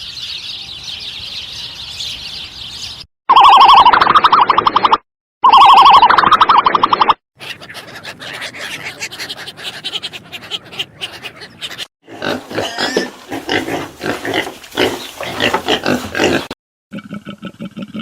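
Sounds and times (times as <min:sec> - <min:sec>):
pigs grunting and squealing: 0:07.4 - 0:18.0.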